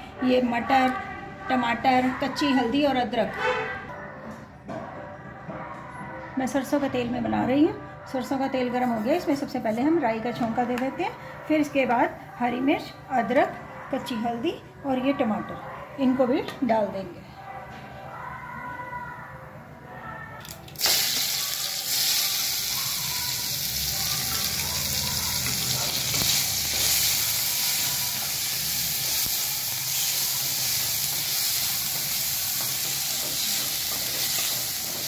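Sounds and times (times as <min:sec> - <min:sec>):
vegetables sizzling in hot oil: 0:20.8 - 0:35.0.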